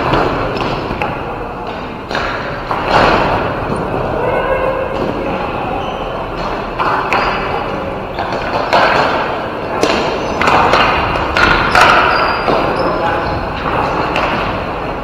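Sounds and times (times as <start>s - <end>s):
sticks striking ball: 0.0s - 3.5s, 6.4s - 7.5s, 8.2s - 12.7s
ball hitting boards: 2.0s - 3.6s, 8.2s - 12.8s.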